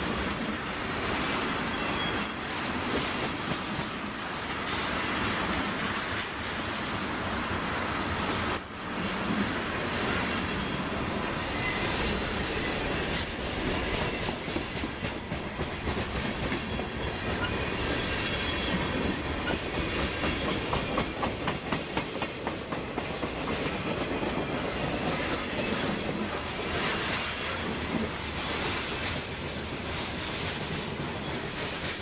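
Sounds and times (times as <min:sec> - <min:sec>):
freight train rolling past: 0:00.0 - 0:32.0.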